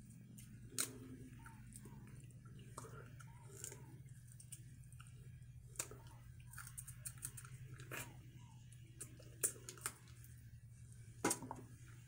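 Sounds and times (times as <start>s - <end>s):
chewing seafood: 0.0s - 11.0s
steady low hum: 0.0s - 12.0s.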